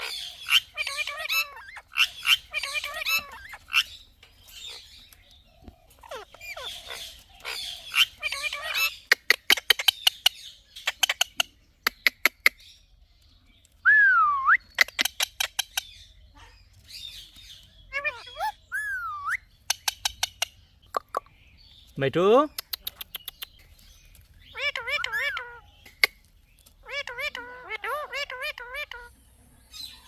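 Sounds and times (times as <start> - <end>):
parrot chattering and squawking: 0.0 - 5.0, 5.9 - 12.7, 14.7 - 16.6, 17.8 - 21.4, 22.5 - 23.6, 24.4 - 29.2
sharp clicks: 22.5 - 23.7.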